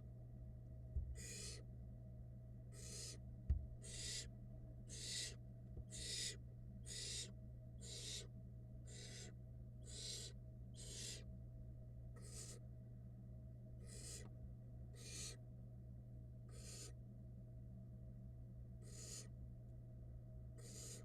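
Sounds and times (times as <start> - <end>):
low electrical hum: 0.0 - 21.0
owl nestlings rasping calls: 1.2 - 1.7, 2.7 - 3.2, 3.8 - 4.3, 4.9 - 11.3, 12.2 - 12.6, 13.8 - 14.3, 14.9 - 15.4, 16.5 - 17.0, 18.8 - 19.4, 20.6 - 21.0.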